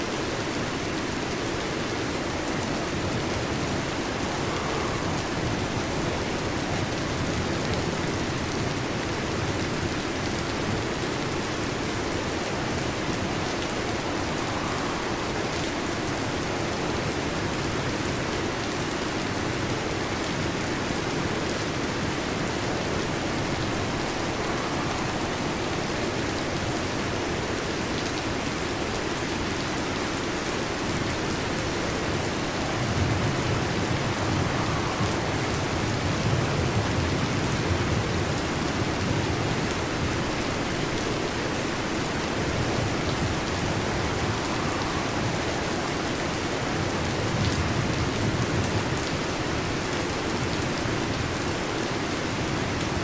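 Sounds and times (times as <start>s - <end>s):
heavy rain on a metal roof: 0.0s - 53.0s
thunder rumble: 2.3s - 9.9s, 21.1s - 27.9s, 30.6s - 49.1s.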